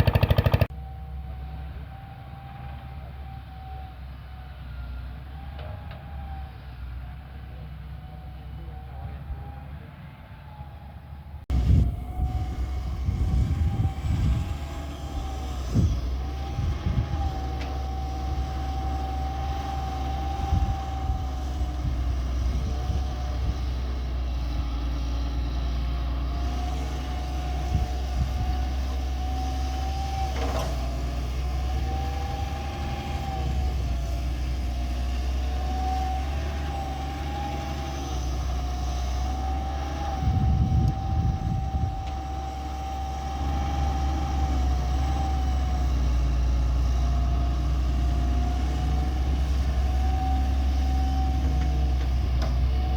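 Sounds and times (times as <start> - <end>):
diesel engine rumbling: 0.0 - 52.9
hydraulic whine: 11.5 - 52.9.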